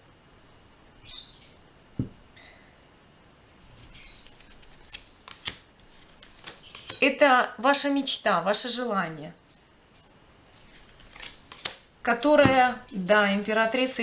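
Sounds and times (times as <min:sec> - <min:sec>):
small bird chirping: 0:01.0 - 0:01.7, 0:03.9 - 0:04.4, 0:09.4 - 0:10.2.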